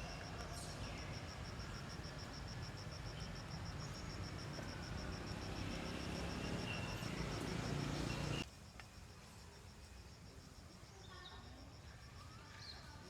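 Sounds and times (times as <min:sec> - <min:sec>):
insect chirping: 0:00.0 - 0:08.4.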